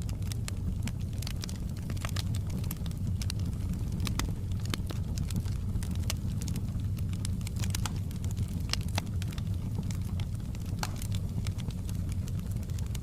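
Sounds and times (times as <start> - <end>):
fire flames rumbling: 0.0 - 13.0
wood crackling and popping: 0.0 - 13.0.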